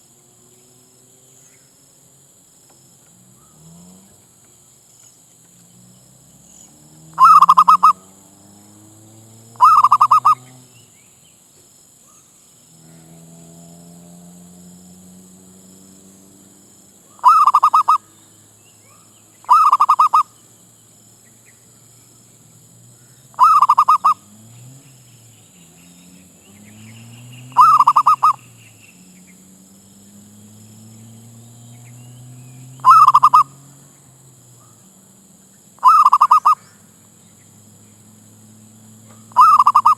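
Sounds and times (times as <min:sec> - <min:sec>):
dove staccato cooing: 0:07.1 - 0:08.1, 0:09.4 - 0:10.7, 0:17.1 - 0:18.2, 0:19.4 - 0:20.3, 0:23.3 - 0:28.7, 0:32.8 - 0:33.7, 0:35.8 - 0:36.6, 0:38.4 - 0:39.9.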